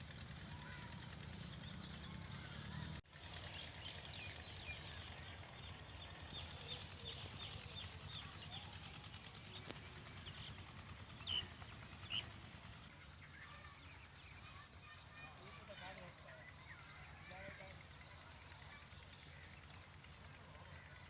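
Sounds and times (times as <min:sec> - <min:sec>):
small birds chirping: 0:00.0 - 0:03.0, 0:09.4 - 0:12.4.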